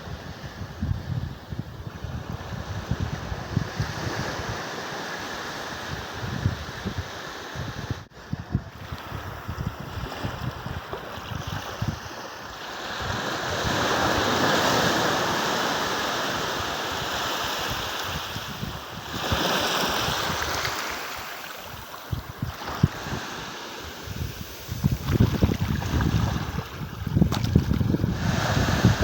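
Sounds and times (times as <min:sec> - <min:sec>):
wind buffeting microphone: 0:00.0 - 0:29.0
ocean waves breaking: 0:12.0 - 0:29.0.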